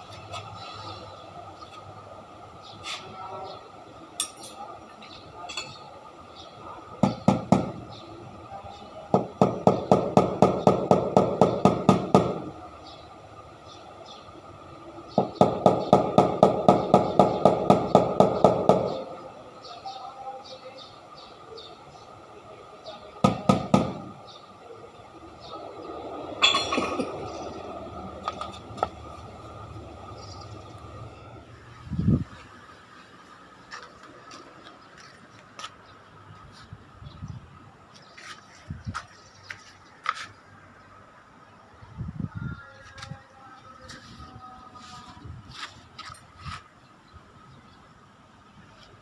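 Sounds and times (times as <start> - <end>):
sharp knocks: 7.0 - 7.8, 9.2 - 12.5, 15.2 - 19.0, 23.2 - 24.1
clattering clinks: 26.4 - 27.4.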